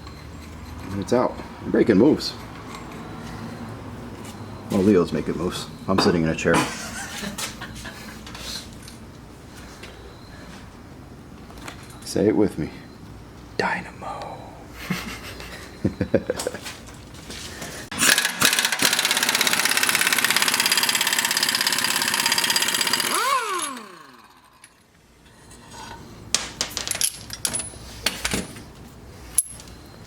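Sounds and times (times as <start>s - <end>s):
air impact wrench hammering: 17.9s - 24.6s
metallic clinks of hardware: 29.3s - 29.9s.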